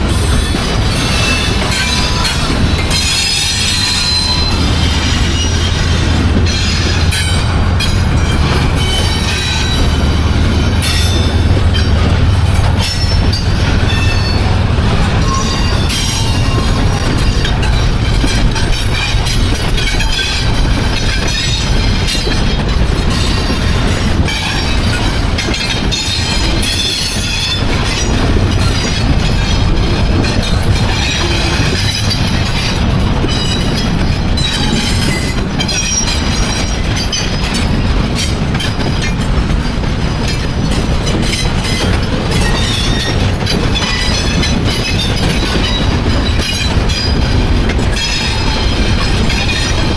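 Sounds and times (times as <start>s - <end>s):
high-pitched wheel squeal: 0.0s - 22.6s
train wheels rumbling on rails: 0.0s - 49.9s.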